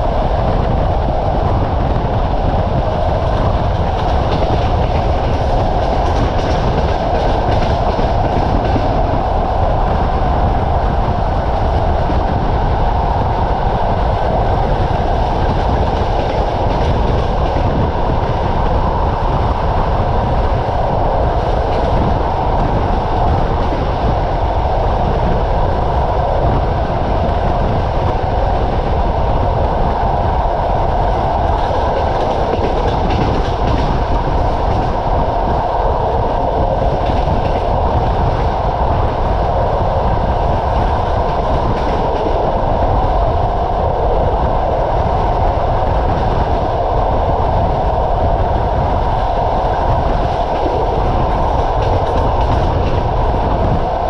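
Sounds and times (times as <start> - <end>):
rushing air: 0.0 - 54.0
train wheels rumbling on rails: 0.0 - 54.0
faint clickety-clack: 1.6 - 9.2, 14.1 - 19.8, 30.9 - 38.6, 49.1 - 53.8.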